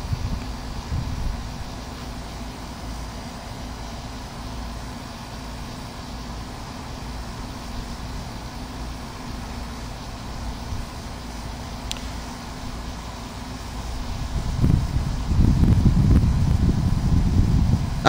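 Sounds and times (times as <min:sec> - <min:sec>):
wind rumble on microphone: 0:00.0 - 0:01.8, 0:13.9 - 0:18.0
box fan coasting down: 0:00.0 - 0:18.0.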